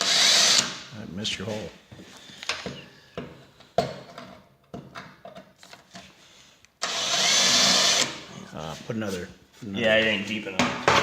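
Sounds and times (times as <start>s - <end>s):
cordless drill drilling steel: 0.0s - 0.7s, 6.8s - 8.2s
tool handling knocks and clicks: 2.4s - 6.1s, 10.6s - 11.0s.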